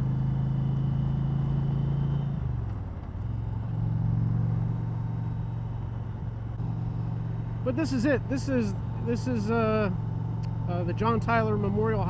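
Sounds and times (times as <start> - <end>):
motorcycle engine running: 2.5 - 12.0.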